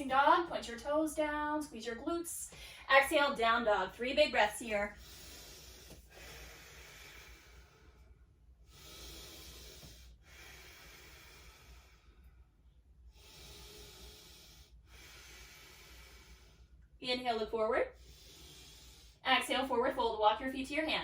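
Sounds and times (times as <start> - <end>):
woman breathing deeply: 2.5 - 2.9, 4.9 - 17.0, 17.9 - 19.2.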